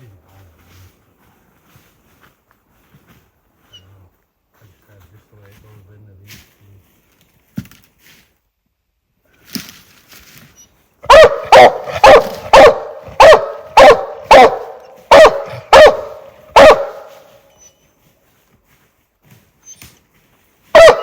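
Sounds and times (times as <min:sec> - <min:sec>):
hound barking: 0:11.0 - 0:17.3, 0:20.7 - 0:21.0.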